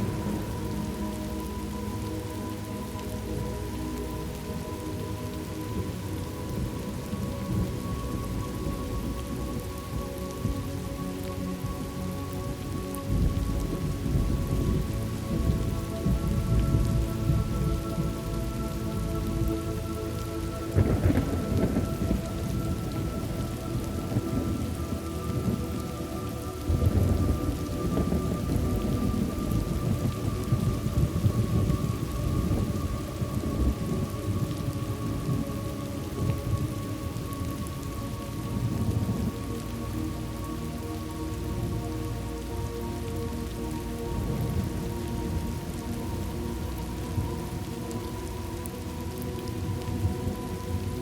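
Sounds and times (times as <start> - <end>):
rolling thunder: 0.0 - 2.0, 20.7 - 37.9
steady rain: 0.0 - 51.0.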